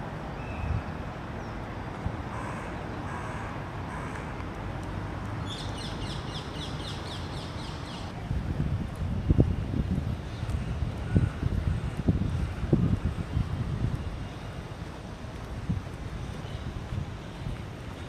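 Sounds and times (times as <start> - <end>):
city street rumble: 0.0 - 18.0
wind buffeting microphone: 8.0 - 18.0.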